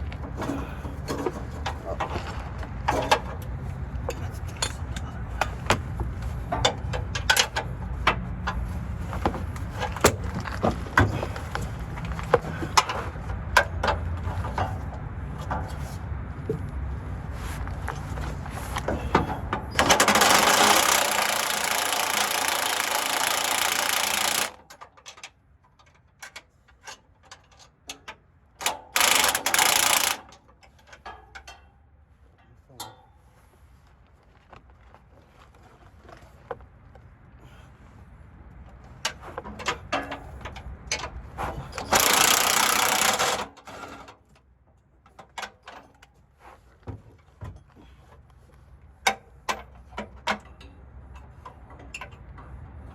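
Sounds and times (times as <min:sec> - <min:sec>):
hand tools clanking: 0:19.7 - 0:25.2, 0:28.6 - 0:31.7
cordless power tool whirring: 0:19.8 - 0:24.6, 0:29.0 - 0:30.2, 0:41.9 - 0:43.5.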